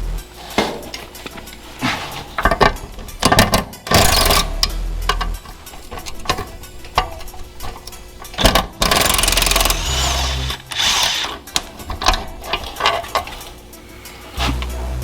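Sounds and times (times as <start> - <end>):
power tool hammering: 2.6 - 5.7, 8.3 - 12.3.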